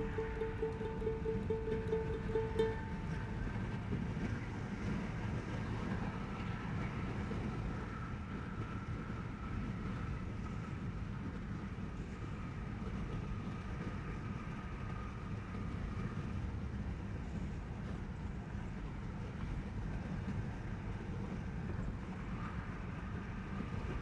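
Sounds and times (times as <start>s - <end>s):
faint steady whine: 0.0s - 5.1s
tyres and engine rumble: 0.0s - 24.0s.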